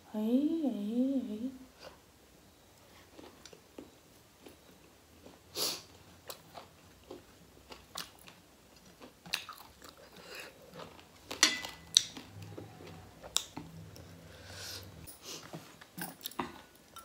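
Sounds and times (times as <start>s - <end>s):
chewing and wet mouth smacks: 6.2s - 11.2s.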